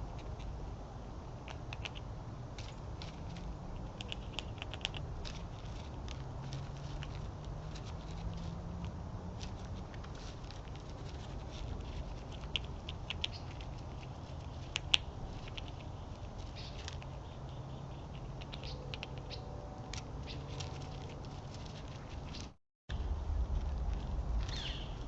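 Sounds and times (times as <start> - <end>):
animals pecking at food: 0.0 - 0.6, 1.4 - 25.0
low rumble: 22.9 - 25.0.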